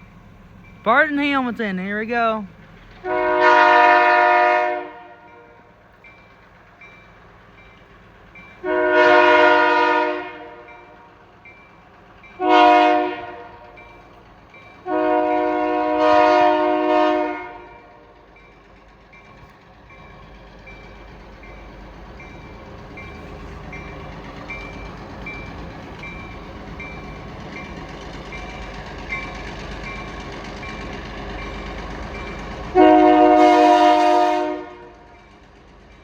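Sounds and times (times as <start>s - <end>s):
locomotive air horn blasts: 3.0s - 5.6s, 8.6s - 10.7s, 12.4s - 13.7s, 14.8s - 18.0s, 32.8s - 35.1s.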